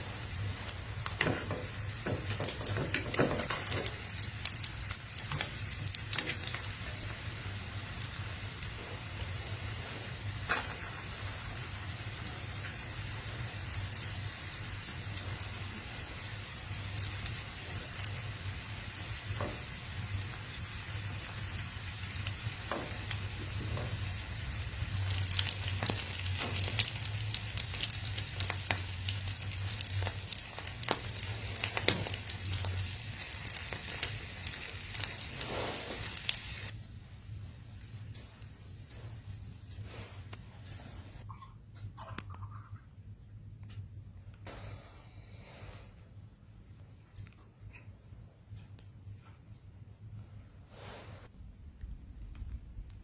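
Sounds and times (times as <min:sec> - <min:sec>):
wood fire crackling and popping: 0:00.4 - 0:36.8.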